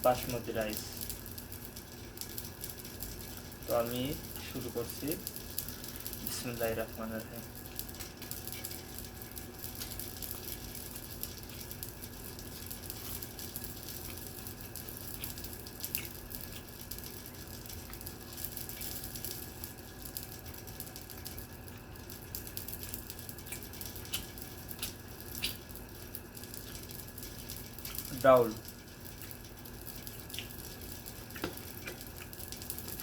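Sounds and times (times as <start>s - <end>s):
faint steady hum: 0.0s - 33.0s
wet squishes of food eaten by hand: 7.8s - 33.0s.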